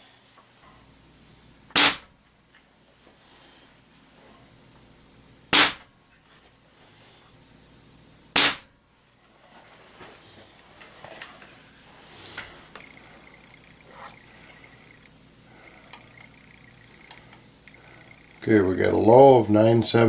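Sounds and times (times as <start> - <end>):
air rifle shots: 1.7 - 2.1, 5.5 - 5.9, 8.3 - 8.7.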